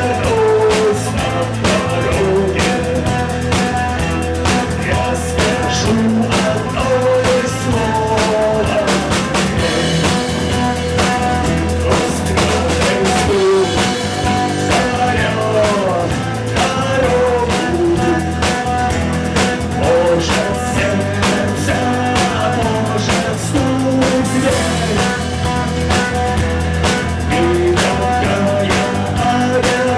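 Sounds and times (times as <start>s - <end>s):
bending guitar lead line: 0.0s - 29.9s
rock band playing live: 0.0s - 29.9s.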